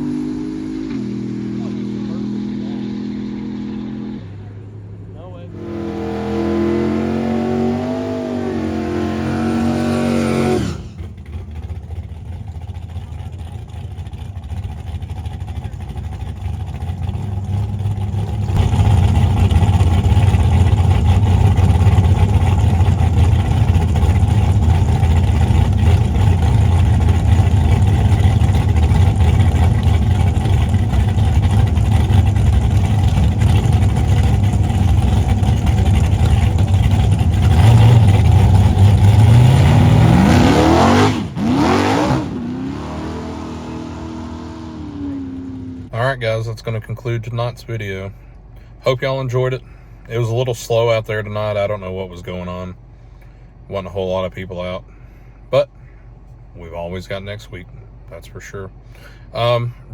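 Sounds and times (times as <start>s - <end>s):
car engine revving: 0.0s - 48.1s
deep engine rumble: 0.0s - 59.9s.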